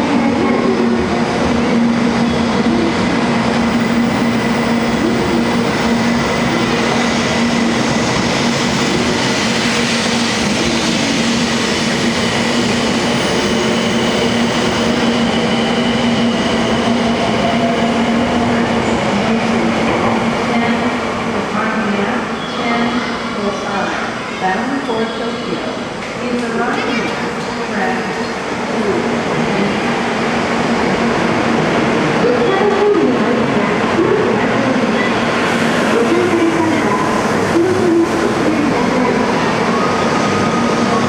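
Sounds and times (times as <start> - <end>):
train rumbling: 0.0 - 41.0
faint steady whines: 3.5 - 18.6.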